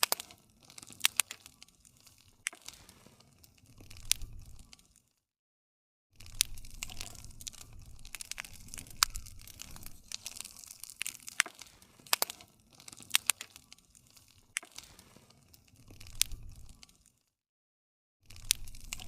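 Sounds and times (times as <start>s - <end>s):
wood fire pops and snaps: 0.0s - 5.2s, 6.2s - 17.2s, 18.3s - 19.0s.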